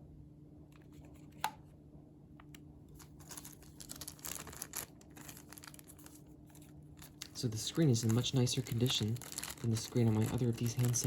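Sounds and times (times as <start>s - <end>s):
faint steady hum: 0.0s - 11.0s
packaging rustling and scraping: 3.0s - 11.0s.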